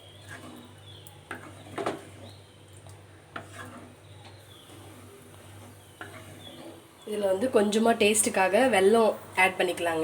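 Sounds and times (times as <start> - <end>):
ladle scraping and knocking a pan: 0.0 - 7.0.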